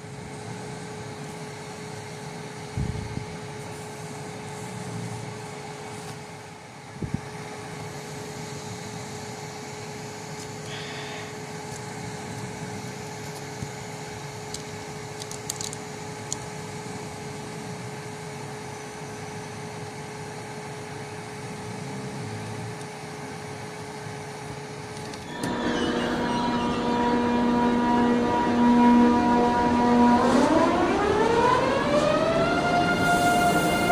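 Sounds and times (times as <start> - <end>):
plastic pieces clicking: 15.2 - 16.4
steady background hum: 23.1 - 33.9
civil defense siren: 25.3 - 33.9.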